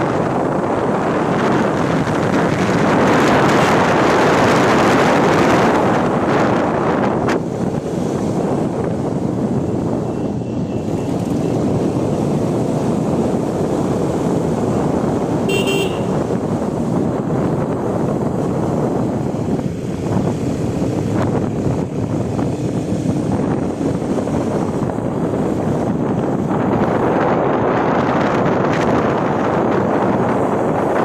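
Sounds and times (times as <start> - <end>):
wind rushing over microphone: 0.0 - 31.0
vehicle horn toot: 15.5 - 16.2.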